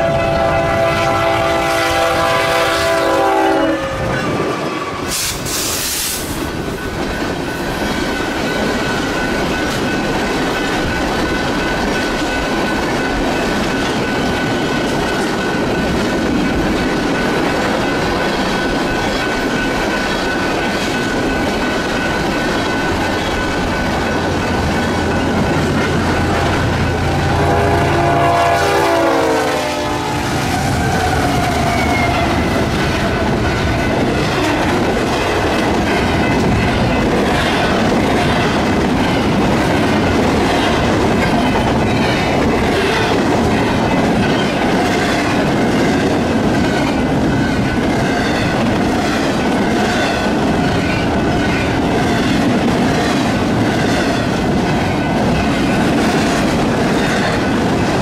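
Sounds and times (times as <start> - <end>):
locomotive horn: 0.0 - 6.0, 26.4 - 33.4
train rumble: 0.0 - 58.0.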